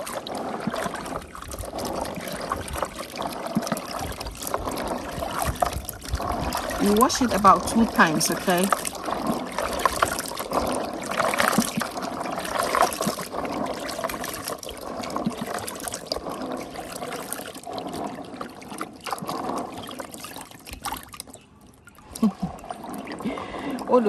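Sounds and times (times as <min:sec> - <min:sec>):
water splashing and trickling: 0:00.0 - 0:24.0.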